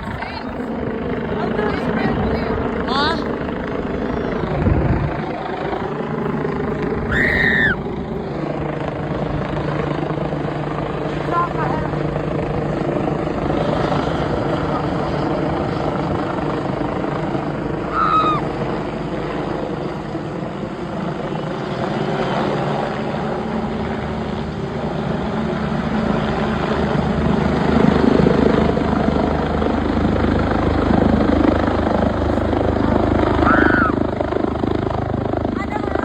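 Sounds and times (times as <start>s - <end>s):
helicopter flying overhead: 0.0s - 36.0s.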